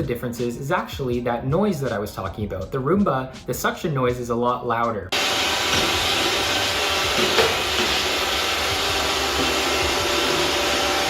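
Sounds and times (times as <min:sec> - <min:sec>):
robot vacuum whirring: 0:05.2 - 0:11.0.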